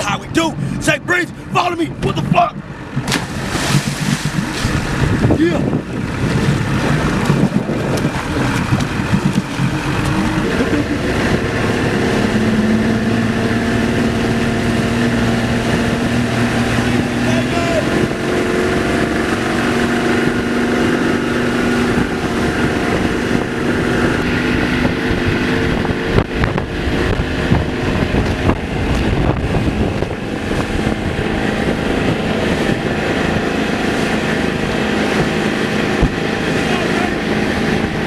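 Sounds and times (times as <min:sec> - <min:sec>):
motorboat engine running: 0:00.0 - 0:38.0
wind buffeting microphone: 0:00.0 - 0:38.0
rushing water: 0:02.9 - 0:26.5, 0:29.7 - 0:38.0.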